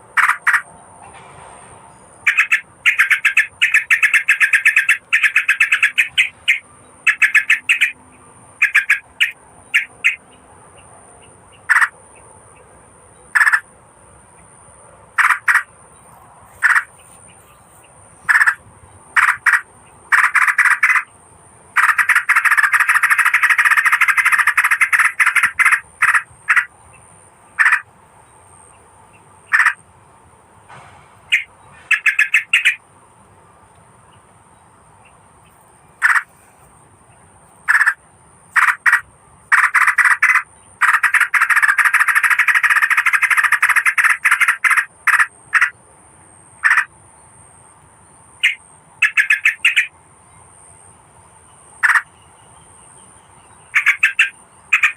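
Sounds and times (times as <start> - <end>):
bird chattering calls: 0.1 - 0.7, 2.2 - 10.3, 11.5 - 12.0, 13.3 - 13.7, 15.2 - 15.7, 16.5 - 21.1, 21.8 - 27.9, 29.5 - 29.8, 31.3 - 32.8, 36.0 - 36.5, 37.6 - 45.8, 46.6 - 46.9, 48.4 - 49.9, 51.8 - 52.1, 53.6 - 54.9.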